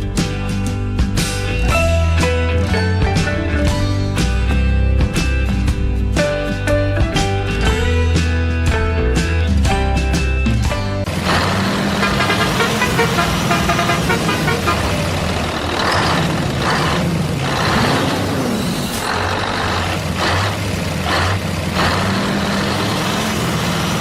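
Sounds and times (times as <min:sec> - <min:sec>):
vehicle engine humming: 0:11.0 - 0:24.0.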